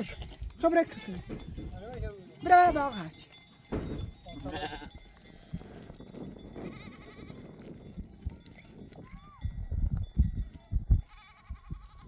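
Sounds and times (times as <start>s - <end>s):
sheep bleating: 0.0s - 0.4s, 4.4s - 5.0s, 6.6s - 7.4s, 11.1s - 12.0s.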